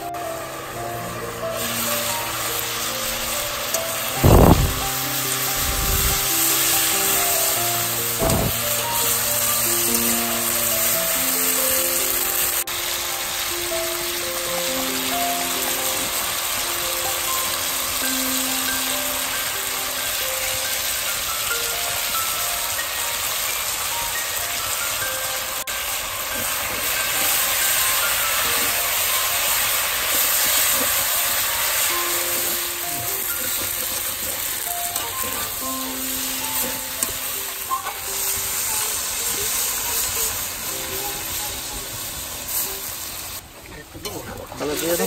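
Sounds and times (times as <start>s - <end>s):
soft background melody: 0.0s - 43.5s
vegetables sizzling in oil: 0.0s - 45.0s
spatula stirring in pan: 25.8s - 41.4s.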